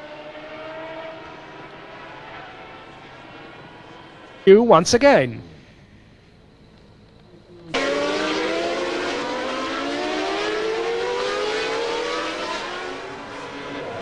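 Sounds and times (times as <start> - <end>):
racing car engine at high revs: 0.0 - 4.4, 7.7 - 14.0.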